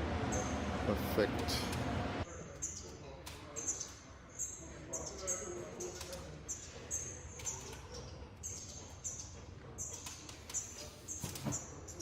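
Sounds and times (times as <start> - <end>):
low steady hum: 0.0 - 2.3.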